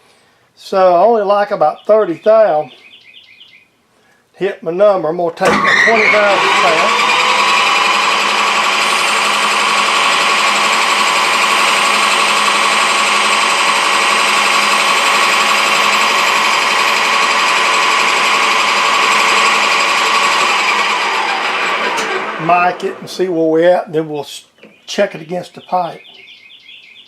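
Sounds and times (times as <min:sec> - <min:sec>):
metal lathe turning: 0:05.4 - 0:23.2.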